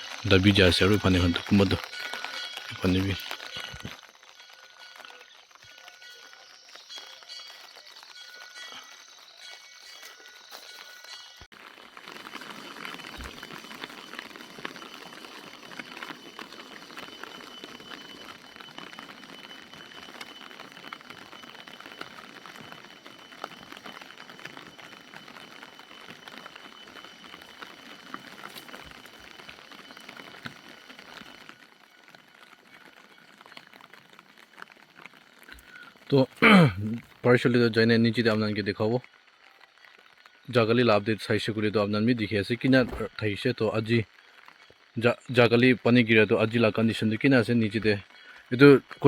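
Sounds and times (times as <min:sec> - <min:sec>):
thin high tone: 0:00.0 - 0:11.5.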